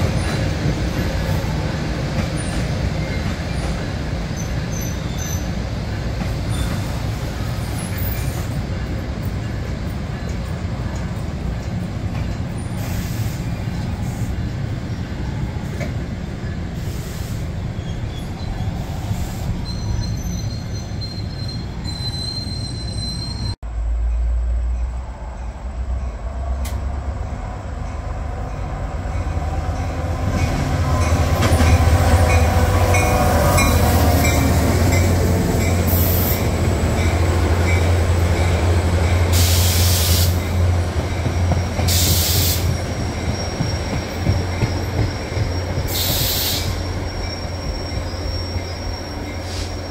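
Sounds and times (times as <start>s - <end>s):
train rolling past on rails: 0.0s - 49.9s
high-pitched wheel squeals: 17.7s - 23.6s, 41.3s - 49.9s.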